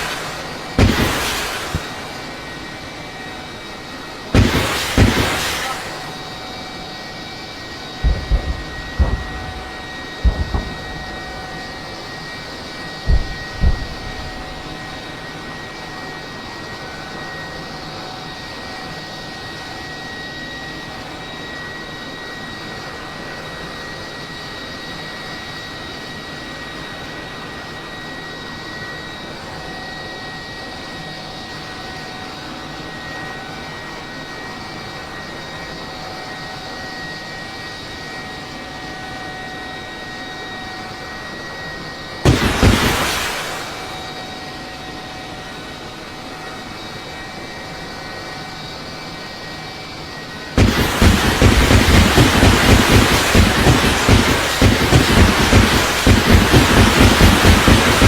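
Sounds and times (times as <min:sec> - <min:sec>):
aircraft engine hum: 0:00.0 - 0:58.0
short low thumps: 0:08.0 - 0:11.7, 0:13.1 - 0:14.6.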